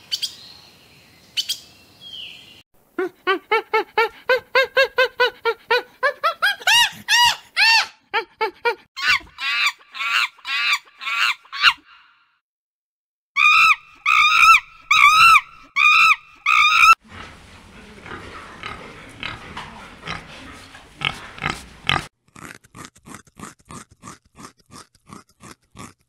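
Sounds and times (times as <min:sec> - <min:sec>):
piglets grunting and squealing: 0:09.0 - 0:11.8, 0:13.4 - 0:17.2, 0:18.0 - 0:26.0
repeated pitched calls: 0:13.4 - 0:17.0.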